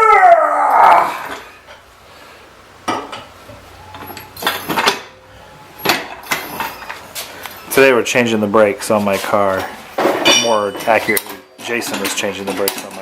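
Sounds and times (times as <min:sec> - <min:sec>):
metal tools clinking: 0:02.9 - 0:13.0.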